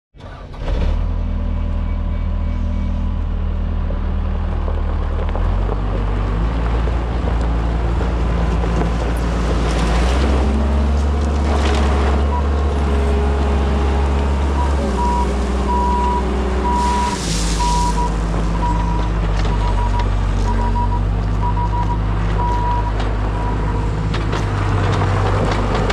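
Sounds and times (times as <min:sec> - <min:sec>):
skid steer diesel engine running: 0:00.2 - 0:25.9
backup alarm beeping: 0:14.6 - 0:23.8.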